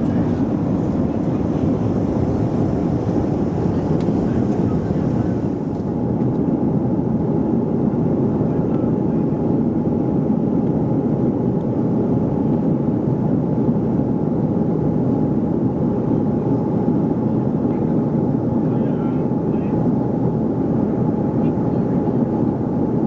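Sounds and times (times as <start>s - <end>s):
faint steady hum: 0.0s - 5.8s
airplane cabin engine noise: 0.0s - 23.0s.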